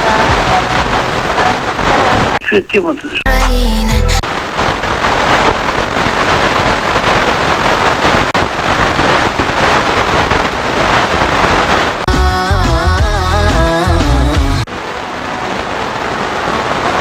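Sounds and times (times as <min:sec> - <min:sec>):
radio static hiss: 0:00.0 - 0:04.6.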